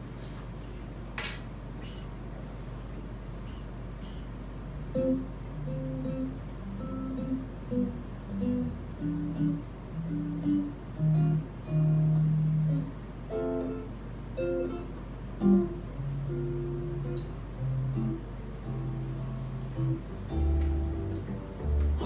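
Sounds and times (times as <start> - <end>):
jazz guitar playing: 4.8 - 22.0.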